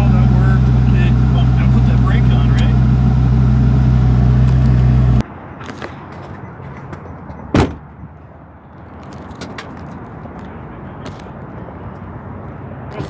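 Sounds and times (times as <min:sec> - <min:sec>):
car engine drone inside cabin: 0:00.0 - 0:05.2
outdoor background noise: 0:00.0 - 0:13.0.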